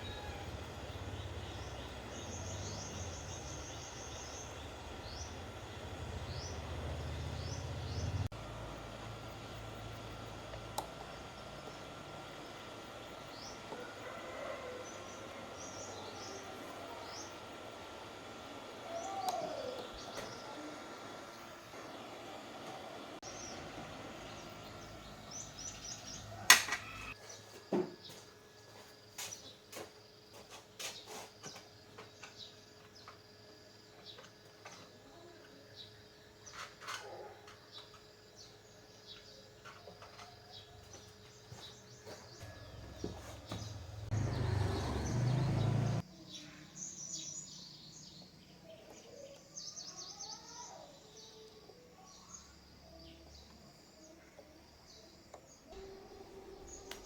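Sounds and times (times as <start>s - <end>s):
birds chirping: 0.0s - 8.3s, 9.3s - 27.5s, 35.7s - 52.4s
loud buzzing hum with hiss: 0.0s - 27.2s
faint steady hum: 45.7s - 57.0s.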